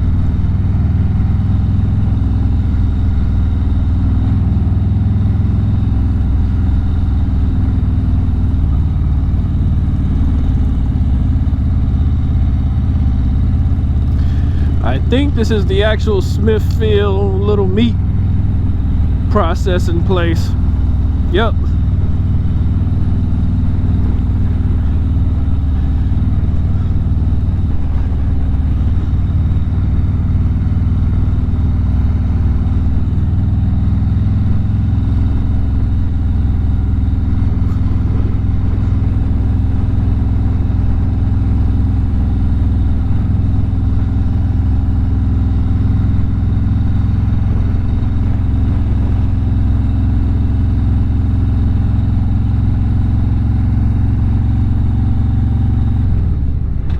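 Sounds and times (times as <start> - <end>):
motorcycle engine rumbling: 0.1 - 55.2.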